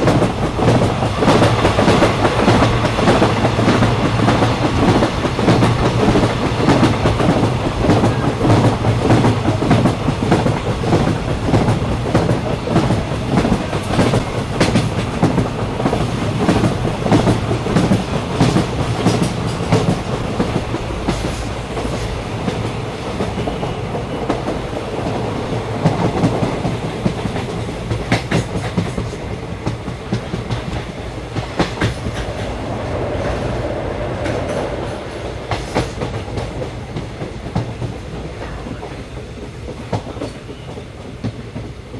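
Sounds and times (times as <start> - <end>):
train rumbling: 0.0 - 41.9.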